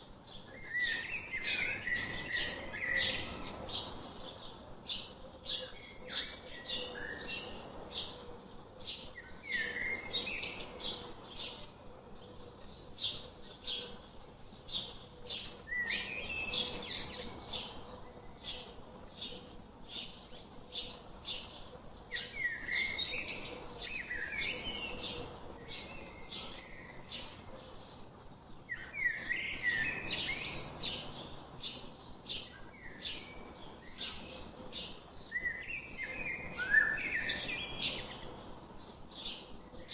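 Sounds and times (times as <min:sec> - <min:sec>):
small birds chirping: 0:12.2 - 0:27.3
sweeping bird calls: 0:12.6 - 0:26.6.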